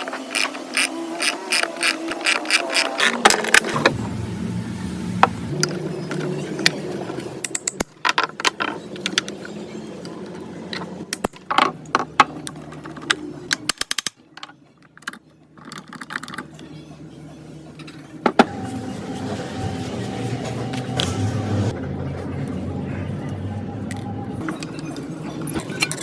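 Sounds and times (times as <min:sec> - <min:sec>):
metal tools clinking: 0:24.4 - 0:26.0.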